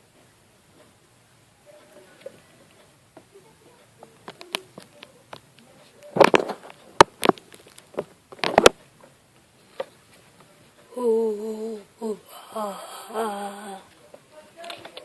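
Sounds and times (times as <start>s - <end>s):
small objects clicking and knocking: 4.2s - 8.8s.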